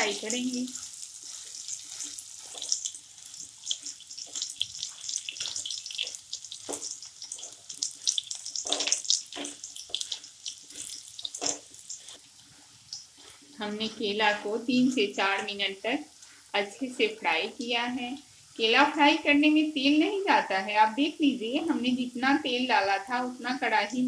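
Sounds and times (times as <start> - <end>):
banana slices crackling in oil: 0.0 - 20.4
spatula scraping pan: 0.1 - 12.3.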